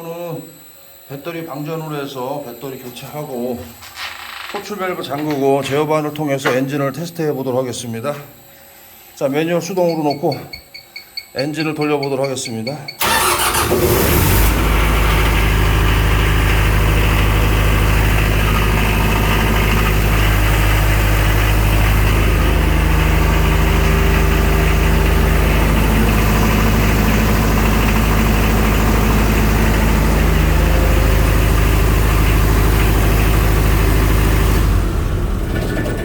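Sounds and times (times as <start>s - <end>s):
pump engine cranking and running: 13.0s - 36.0s.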